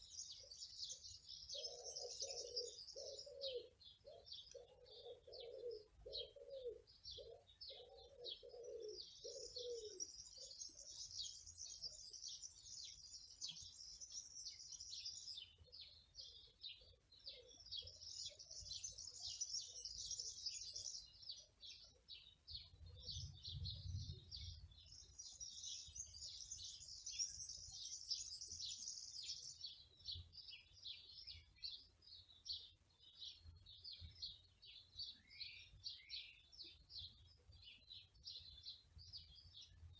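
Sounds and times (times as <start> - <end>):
small birds chirping: 0.0 - 39.9
dove cooing: 1.5 - 10.1.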